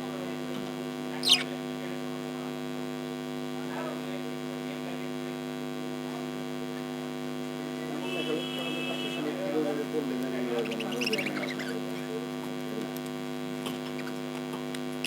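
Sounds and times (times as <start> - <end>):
electrical hum: 0.0 - 3.6, 6.4 - 15.0
budgerigar chirping: 1.2 - 1.5, 10.4 - 11.8
faint bird warbles: 1.2 - 1.5, 10.4 - 11.8.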